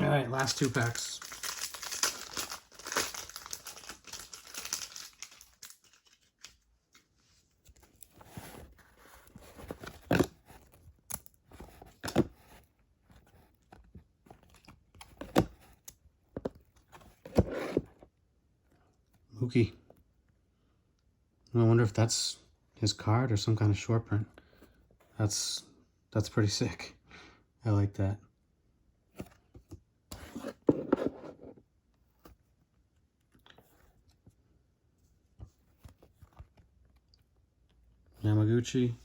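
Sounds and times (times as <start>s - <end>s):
foil wrapper tearing and crinkling: 0.4s - 6.6s.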